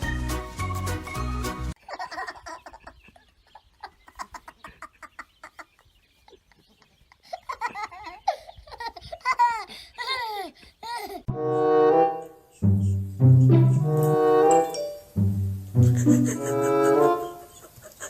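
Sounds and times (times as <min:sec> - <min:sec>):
music: 0:00.0 - 0:01.8, 0:11.3 - 0:17.6
person laughing: 0:01.8 - 0:11.3, 0:12.5 - 0:14.1, 0:15.8 - 0:18.0.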